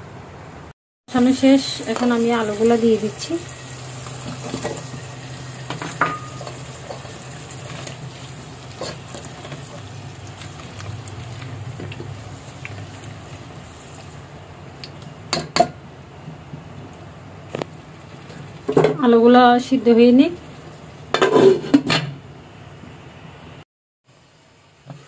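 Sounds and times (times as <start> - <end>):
masala sizzling gently: 1.1 - 21.8, 24.1 - 25.0
spatula scraping pot: 5.6 - 13.4, 21.1 - 21.9.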